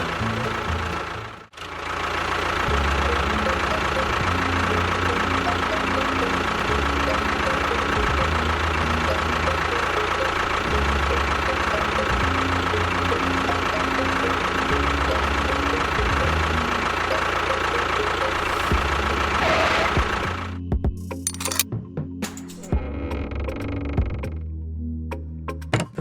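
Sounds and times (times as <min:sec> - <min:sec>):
motor running with whine: 0:00.0 - 0:01.5, 0:02.2 - 0:20.6.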